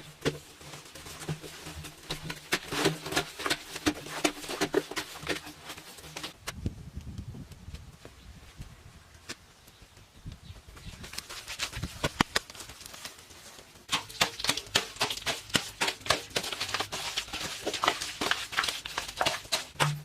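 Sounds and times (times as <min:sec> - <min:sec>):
rapid irregular tapping: 0:13.9 - 0:20.0.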